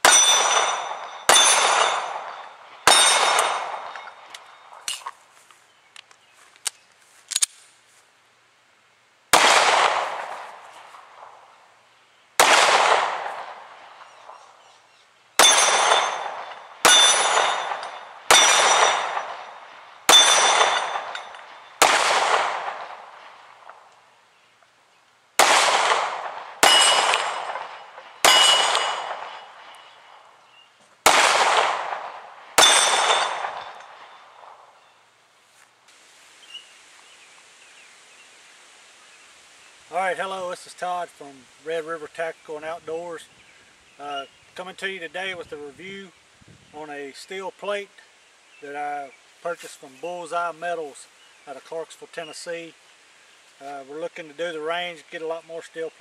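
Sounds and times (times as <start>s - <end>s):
pistol shots: 0.0s - 4.6s, 9.3s - 10.6s, 12.4s - 14.4s, 15.4s - 23.8s, 25.4s - 30.0s, 31.0s - 34.6s
steel target clanging: 0.0s - 5.1s, 15.4s - 21.9s, 26.6s - 30.1s, 32.6s - 34.4s.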